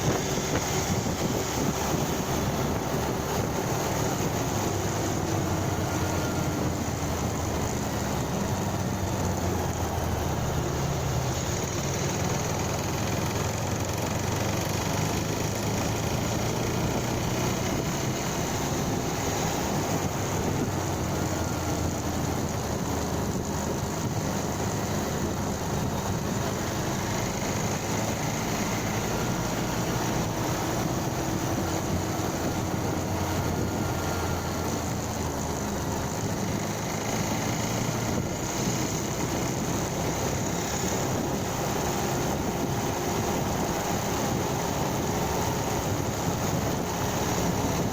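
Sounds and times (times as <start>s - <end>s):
motorcycle engine running: 0.0s - 47.9s
road noise rushing: 0.0s - 47.9s.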